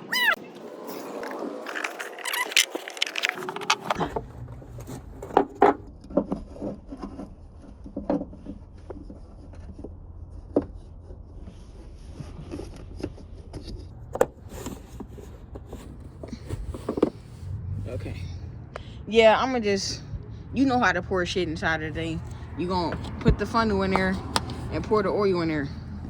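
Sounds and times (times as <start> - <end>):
plastic bottle and funnel clicks: 1.2 - 4.1
low steady rumble: 3.9 - 26.0.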